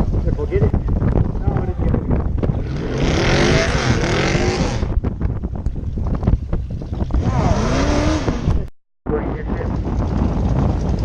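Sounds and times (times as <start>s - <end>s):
drag racing engines revving: 2.6s - 4.9s, 7.1s - 8.6s.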